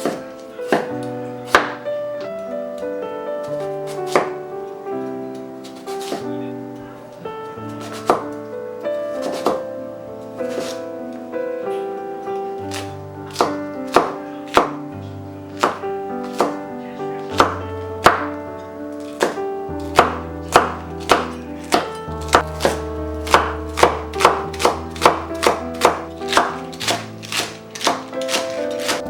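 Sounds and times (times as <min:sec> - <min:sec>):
knife chopping on a cutting board: 0:00.0 - 0:01.8, 0:03.5 - 0:04.4, 0:05.6 - 0:06.3, 0:07.7 - 0:08.4, 0:09.1 - 0:09.6, 0:10.4 - 0:10.9, 0:12.6 - 0:14.8, 0:15.5 - 0:16.6, 0:17.2 - 0:18.3, 0:19.0 - 0:29.0
background music: 0:00.0 - 0:29.0.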